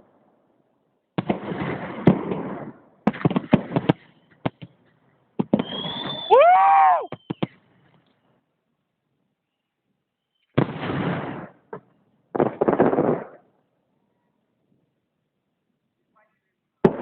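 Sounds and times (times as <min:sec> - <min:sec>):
fireworks bursting and crackling: 0:01.2 - 0:08.0, 0:10.5 - 0:13.6
rising and falling whoop: 0:06.2 - 0:07.1.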